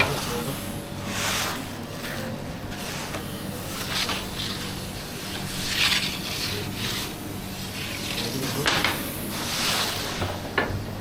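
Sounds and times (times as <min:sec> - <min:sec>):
rubbing and scraping: 0:00.0 - 0:10.5
steady low hum: 0:00.0 - 0:11.0.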